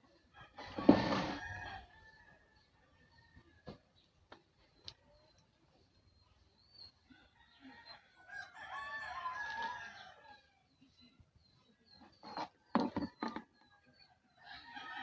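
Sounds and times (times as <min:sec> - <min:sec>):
rooster crowing: 0:07.3 - 0:10.5.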